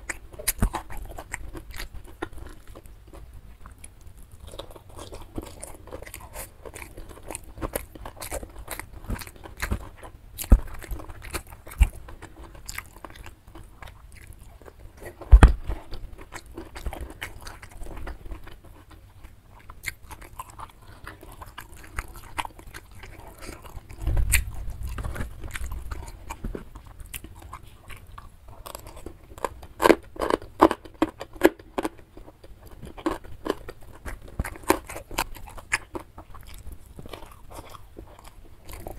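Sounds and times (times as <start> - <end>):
wet chewing and lip-smacking: 0.0 - 38.9
sharp thump: 24.0 - 25.2
low bump: 24.0 - 26.0.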